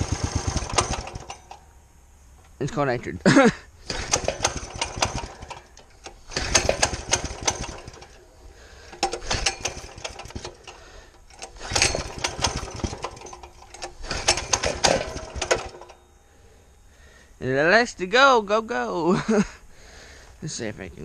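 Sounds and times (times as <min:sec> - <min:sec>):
mini bike engine starting: 0:00.0 - 0:01.6, 0:03.8 - 0:16.0.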